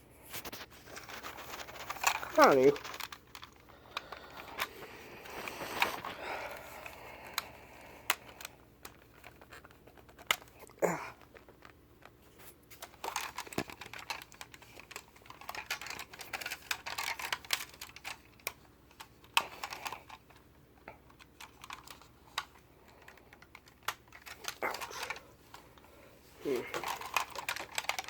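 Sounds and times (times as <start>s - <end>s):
fingernails clicking on toy car: 12.8s - 20.4s, 21.0s - 25.2s, 26.7s - 28.0s.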